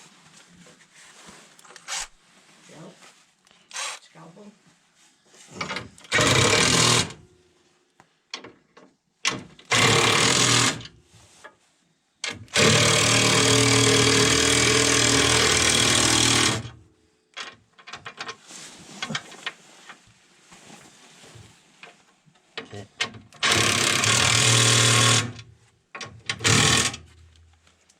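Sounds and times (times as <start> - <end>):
power driver driving bolts: 6.0 - 7.2, 9.6 - 10.9, 12.5 - 16.7, 23.4 - 25.4, 26.3 - 27.0.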